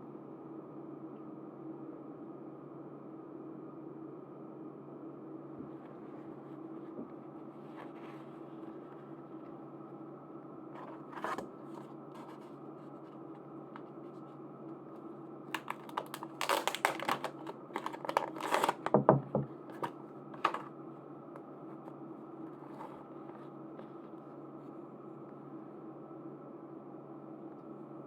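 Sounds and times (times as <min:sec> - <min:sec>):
low steady hum: 0:00.0 - 0:28.0
packaging rustling and tearing: 0:10.8 - 0:12.5, 0:15.5 - 0:19.0, 0:19.7 - 0:20.7.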